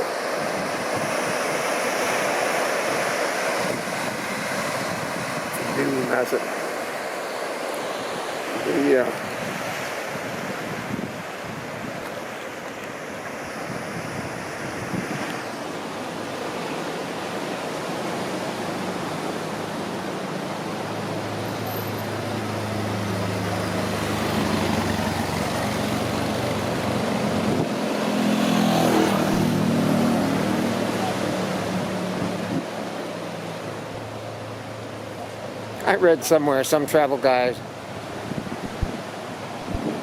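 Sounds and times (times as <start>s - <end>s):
surf: 0.0s - 40.0s
wind: 0.0s - 40.0s
engine approaching: 18.4s - 36.3s.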